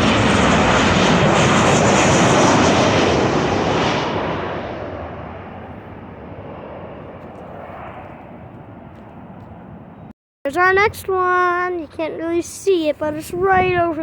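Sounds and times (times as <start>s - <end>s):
jet airliner passing overhead: 0.0s - 10.1s.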